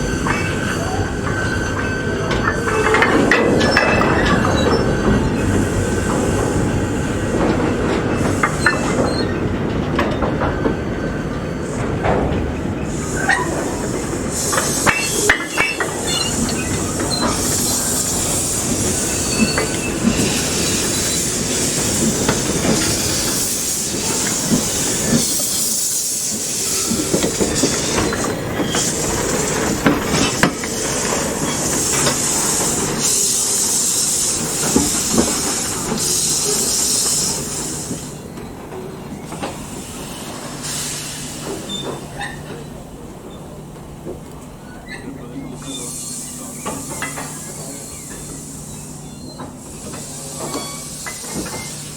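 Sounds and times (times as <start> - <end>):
train wheels clattering on rails: 0.0 - 51.9
high squealing or hissing: 12.9 - 38.2.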